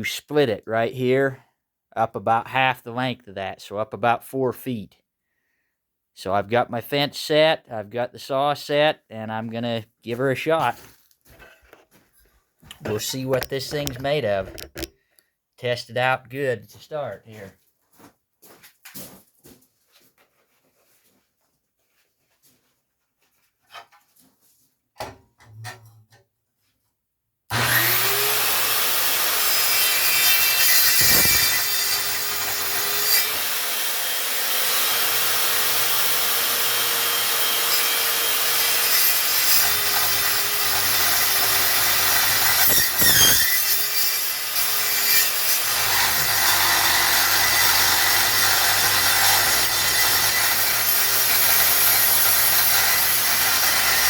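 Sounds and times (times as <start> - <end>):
circular saw cutting steel: 27.5 - 54.0.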